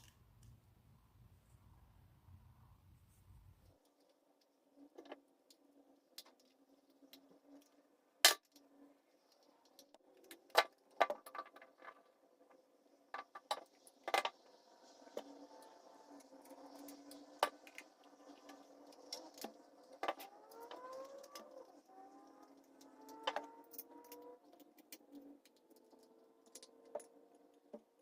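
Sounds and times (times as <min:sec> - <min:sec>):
small hard parts clicking: 0:15.1 - 0:28.0.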